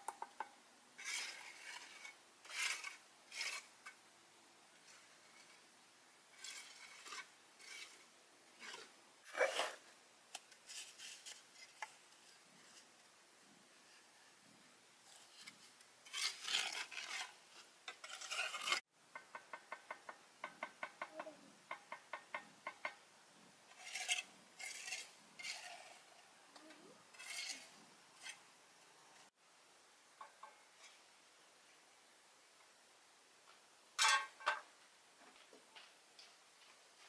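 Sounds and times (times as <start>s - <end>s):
scraping strokes: 1.0s - 4.0s, 6.3s - 13.1s, 15.0s - 18.9s, 23.7s - 28.5s.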